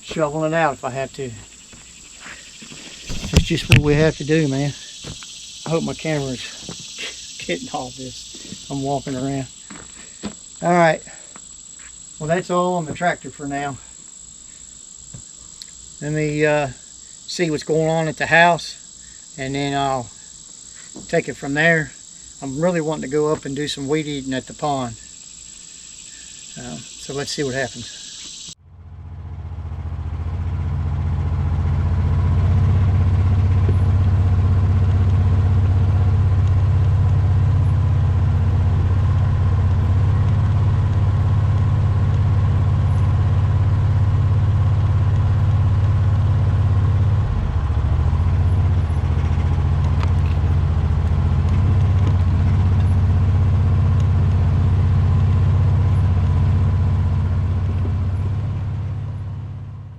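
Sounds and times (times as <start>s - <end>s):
vehicle engine rumbling: 0.0s - 12.5s, 24.9s - 59.9s.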